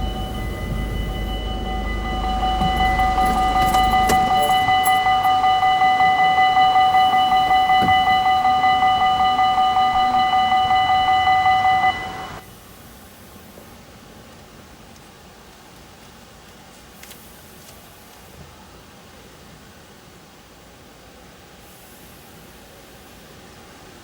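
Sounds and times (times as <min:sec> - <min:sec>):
low rumble: 0:00.0 - 0:05.9
level crossing alarm ringing: 0:00.0 - 0:12.5.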